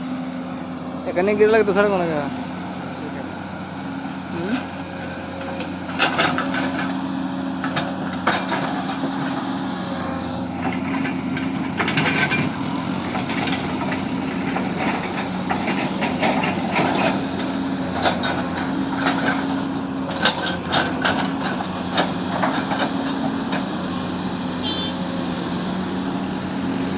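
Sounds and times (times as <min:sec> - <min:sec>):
excavator engine running: 0:00.0 - 0:26.9
knocks and clanks: 0:05.4 - 0:07.0, 0:07.6 - 0:09.4, 0:10.6 - 0:23.8.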